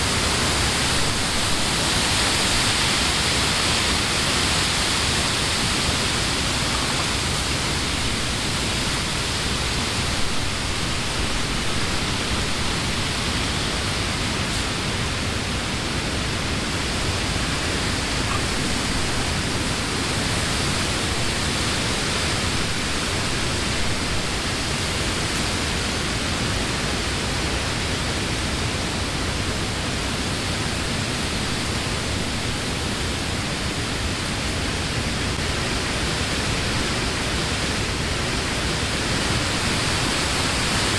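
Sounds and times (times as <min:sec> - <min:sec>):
wind through leafy trees: 0:00.0 - 0:40.9.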